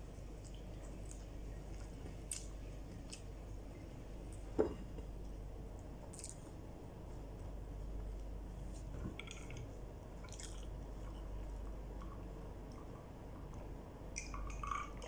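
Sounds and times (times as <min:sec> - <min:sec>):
person chewing: 0:06.1 - 0:06.5, 0:10.2 - 0:10.7.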